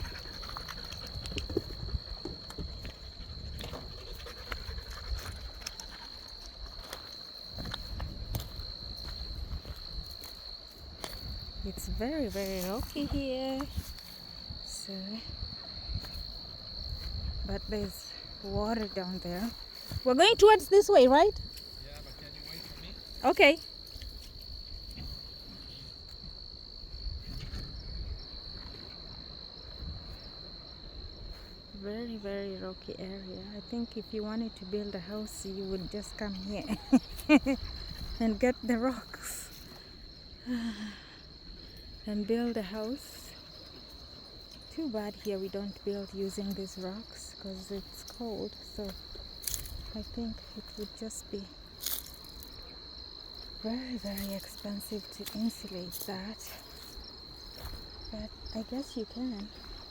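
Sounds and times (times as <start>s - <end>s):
high-pitched insect trill: 0.0s - 59.9s
footsteps on loose rocky ground: 0.4s - 11.5s.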